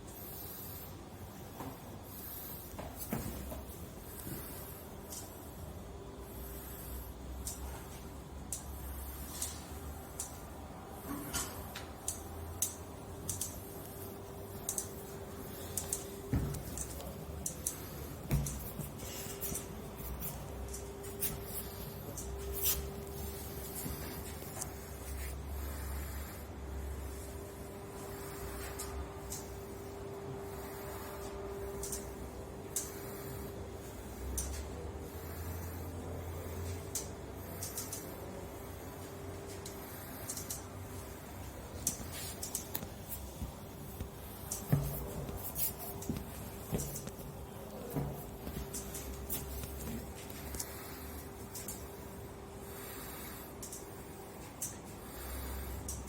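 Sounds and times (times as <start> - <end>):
steady low hum: 0.0 - 56.0
sharp clicks: 11.4 - 14.0, 36.9 - 38.1.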